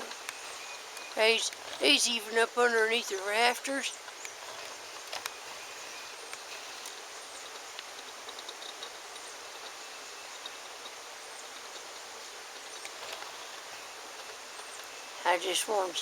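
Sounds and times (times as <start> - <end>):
hiss-like outdoor wash: 0.0 - 16.0
faint small ticks: 4.0 - 15.0.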